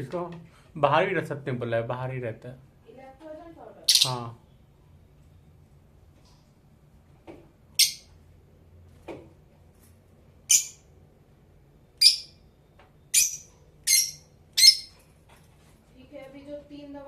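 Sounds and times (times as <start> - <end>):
lovebird shrill calls: 3.9 - 4.3, 7.8 - 8.1, 10.5 - 10.9, 12.0 - 12.4, 13.1 - 15.0.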